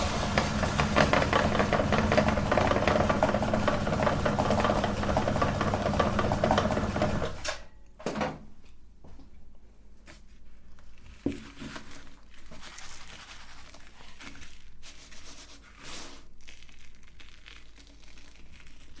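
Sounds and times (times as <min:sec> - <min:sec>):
cookies crunching in grinder: 0:00.0 - 0:07.3, 0:16.2 - 0:19.0.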